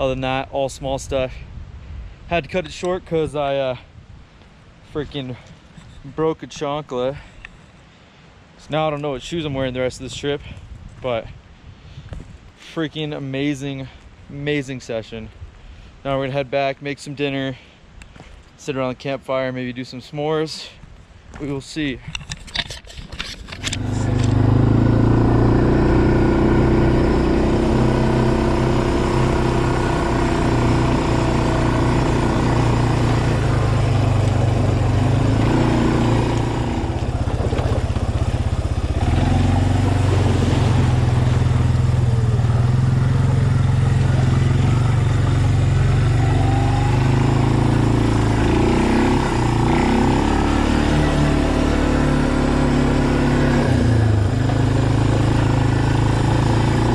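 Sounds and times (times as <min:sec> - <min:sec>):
vehicle engine running: 0:23.7 - 0:56.9.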